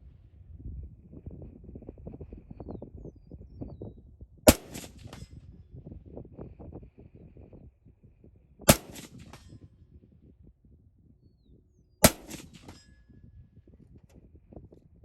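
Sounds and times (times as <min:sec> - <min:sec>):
wind rumbling on microphone: 0:00.0 - 0:15.0
rifle shots: 0:04.5 - 0:05.3, 0:08.7 - 0:09.6, 0:12.0 - 0:12.9
faint ring of steel target: 0:04.5 - 0:05.4, 0:08.7 - 0:09.7, 0:12.0 - 0:13.1.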